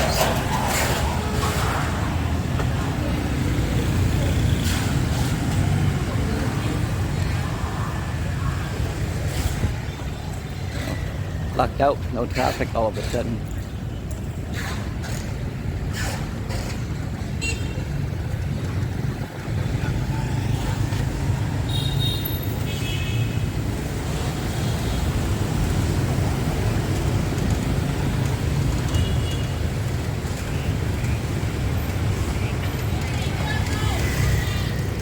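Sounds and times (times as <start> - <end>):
city street traffic: 0.0 - 35.0.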